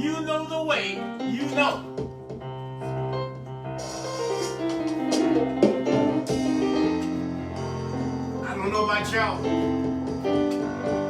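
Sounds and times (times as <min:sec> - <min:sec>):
keyboard playing held chords: 0:00.0 - 0:11.0
drum and cymbal hits: 0:03.8 - 0:08.4.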